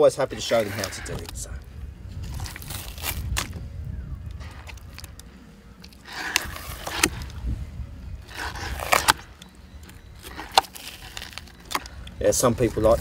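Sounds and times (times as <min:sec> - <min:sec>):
low steady rumble: 0:00.0 - 0:13.0
skin peeling scrapes and clicks: 0:00.3 - 0:07.4, 0:08.2 - 0:13.0.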